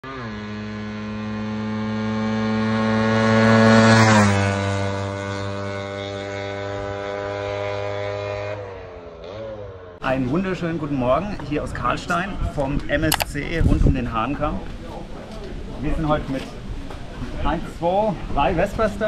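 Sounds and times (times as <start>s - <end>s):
scooter engine passing by: 0.0s - 10.0s.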